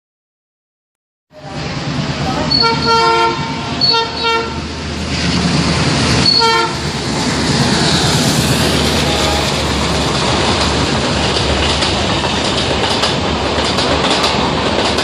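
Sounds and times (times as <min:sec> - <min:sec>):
wheel and rail noise: 0:01.4 - 0:15.0
locomotive horn blasts: 0:02.5 - 0:04.7, 0:06.2 - 0:06.8, 0:08.8 - 0:09.8.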